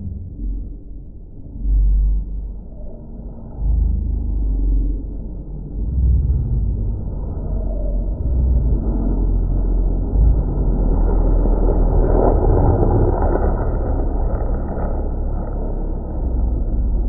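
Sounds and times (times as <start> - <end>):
race car passing: 8.2 - 17.0.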